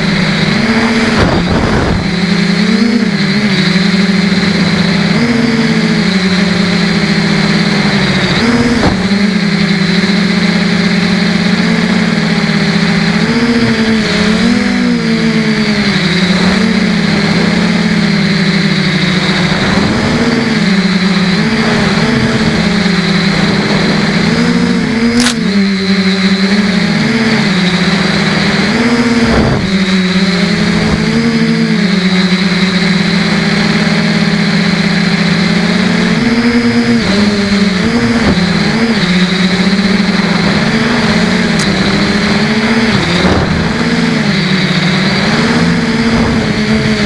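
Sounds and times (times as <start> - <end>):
quadcopter motors buzzing: 0.0 - 47.0
sharp click: 25.2 - 25.4.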